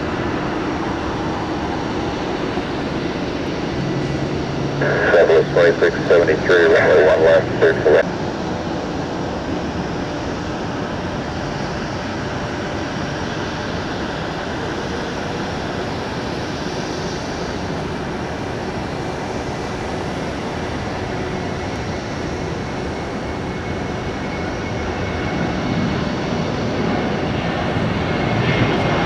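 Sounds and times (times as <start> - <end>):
jet engines at takeoff power: 0.0 - 29.0
faint steady whine: 4.4 - 8.0.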